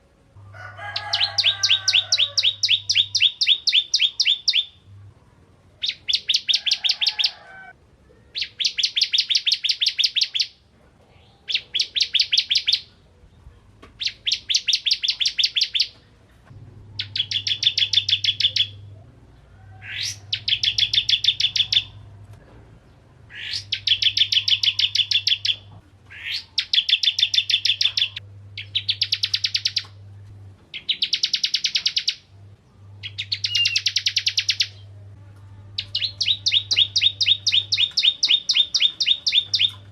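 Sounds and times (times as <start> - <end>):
bird singing rapid trills: 1.0 - 4.9, 5.8 - 7.3, 8.4 - 10.6, 11.5 - 13.0, 14.0 - 15.9, 17.0 - 18.9, 19.8 - 22.0, 23.3 - 30.0, 30.7 - 32.4, 33.0 - 34.9, 35.8 - 39.9.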